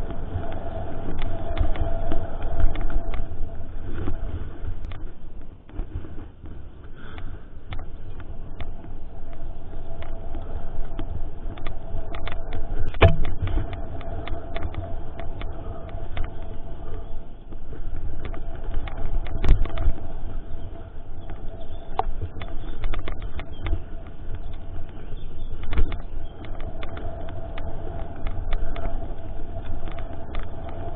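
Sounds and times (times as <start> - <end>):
bike low rumble: 0.0 - 30.9
faint steady hum: 0.0 - 30.9
bike rattling and knocking: 11.6 - 30.9.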